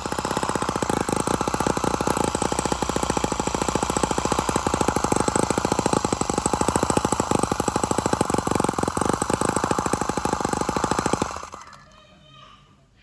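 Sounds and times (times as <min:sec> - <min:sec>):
small model engine running fast: 0:00.0 - 0:12.0.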